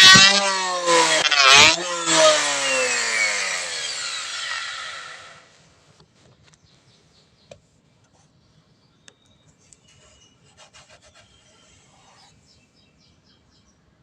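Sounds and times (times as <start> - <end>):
faint rubbing and scraping: 9.6 - 12.6.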